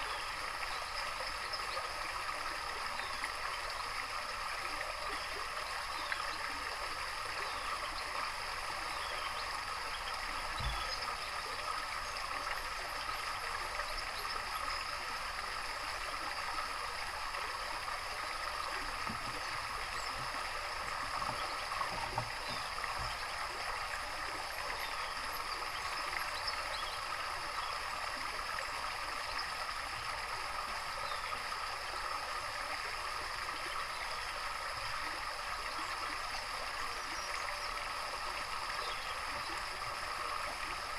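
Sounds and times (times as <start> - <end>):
water trickling and gurgling: 0.0 - 40.9
songbirds chirping: 18.1 - 27.9.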